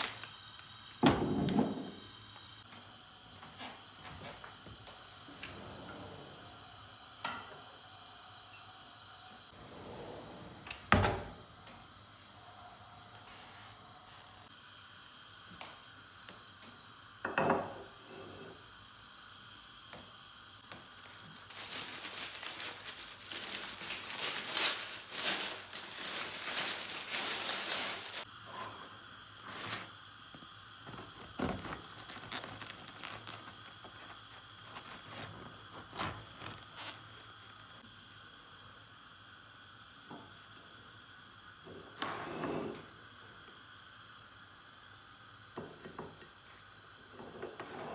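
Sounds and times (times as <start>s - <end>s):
packaging rustling: 0.0s - 0.7s, 20.7s - 28.2s, 30.9s - 37.1s.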